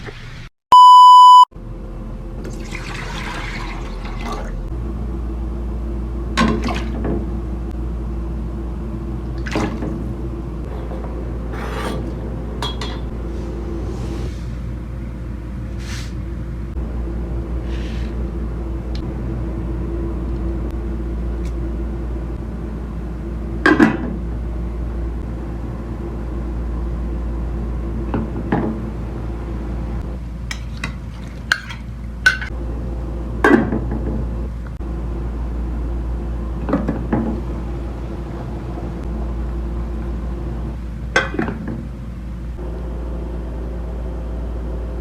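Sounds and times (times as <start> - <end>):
steady low hum: 1.1 - 45.0
metal cookware clinking: 11.5 - 13.1, 30.5 - 32.5.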